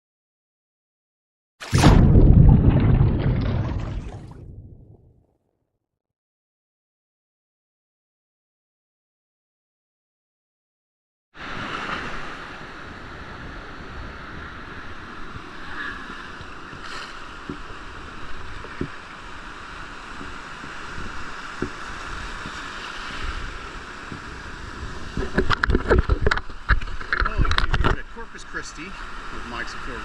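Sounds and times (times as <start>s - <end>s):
surf washing onto beach: 11.4s - 30.0s.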